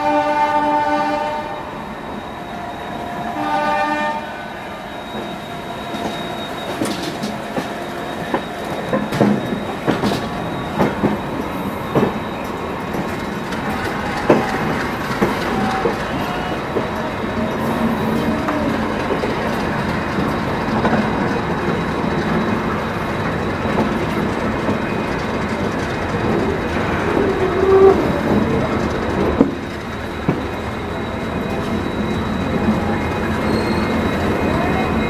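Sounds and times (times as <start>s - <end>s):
locomotive horn blasts: 0.0s - 1.8s, 3.0s - 5.3s
train rolling rumble: 0.0s - 35.0s
train wheels clattering over rail joints: 5.9s - 34.2s.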